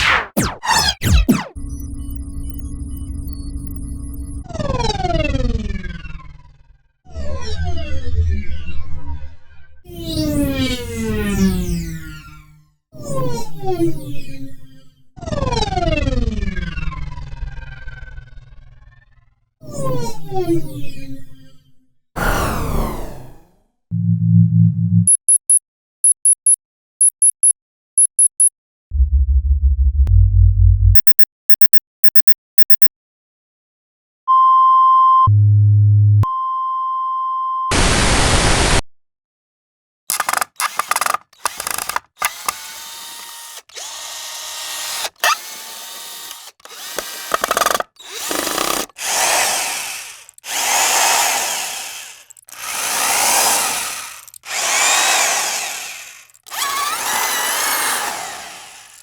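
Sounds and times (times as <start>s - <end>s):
steady beep tone: 25.1s - 28.5s, 31.0s - 32.9s
quick clicks: 31.0s - 32.9s, 40.1s - 59.0s
drill whining: 40.1s - 59.0s.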